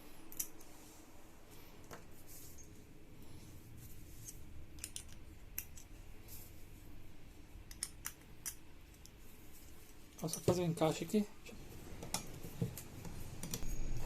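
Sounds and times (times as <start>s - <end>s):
faint low hum: 0.0s - 14.0s
small metal parts clicking and scraping: 4.1s - 6.4s.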